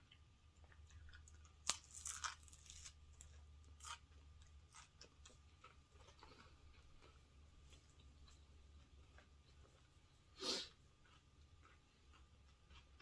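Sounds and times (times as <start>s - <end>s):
chewing and crunching food: 0.0s - 13.0s.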